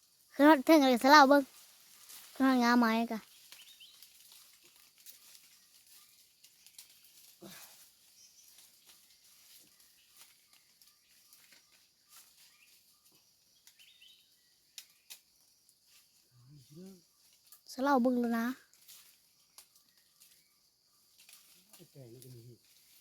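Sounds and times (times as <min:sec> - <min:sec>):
faint bird chirps: 0:01.9 - 0:23.0.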